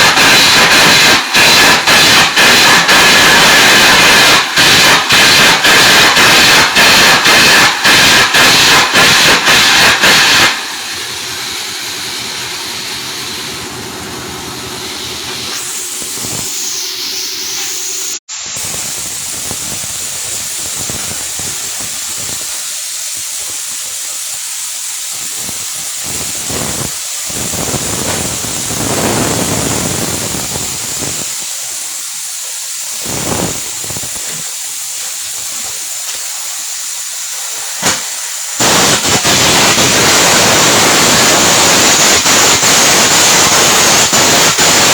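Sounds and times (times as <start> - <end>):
welding arc hissing and crackling: 0.0 - 44.9.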